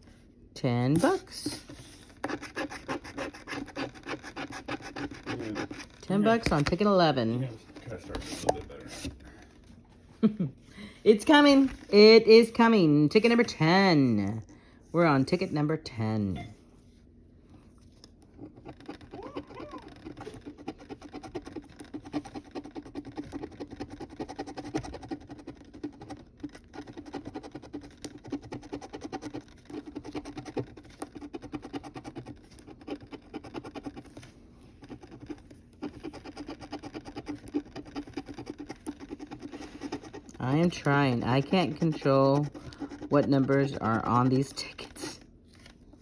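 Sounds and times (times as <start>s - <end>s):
coin scratching paper ticket: 2.2s - 6.9s, 18.4s - 34.1s, 34.8s - 45.2s.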